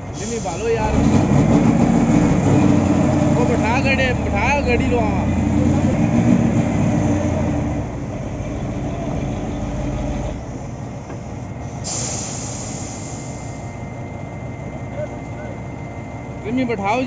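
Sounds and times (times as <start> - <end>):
diesel engine droning: 0.0 - 17.0
high hiss: 11.7 - 13.7.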